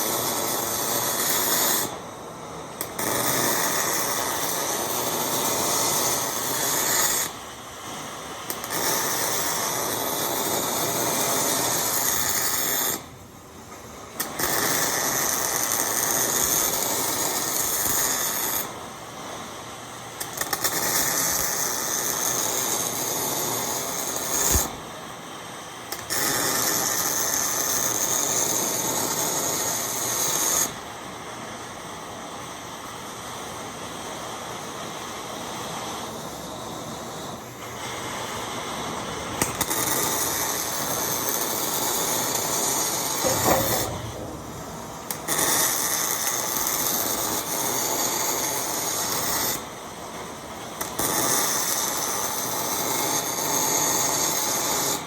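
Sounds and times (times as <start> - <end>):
welding arc buzzing: 8.5 - 13.0, 14.2 - 18.7, 20.2 - 24.8, 25.9 - 30.8, 39.1 - 49.7.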